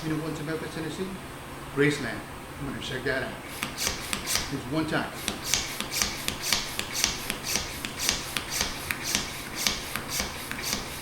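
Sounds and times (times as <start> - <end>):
hand pump hissing strokes: 3.4 - 11.0.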